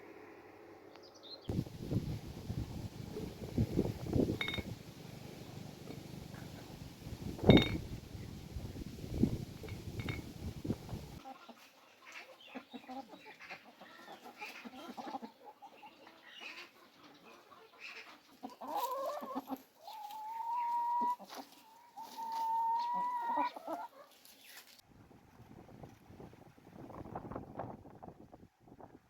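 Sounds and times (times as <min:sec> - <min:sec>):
chickens clucking: 0:01.5 - 0:24.2.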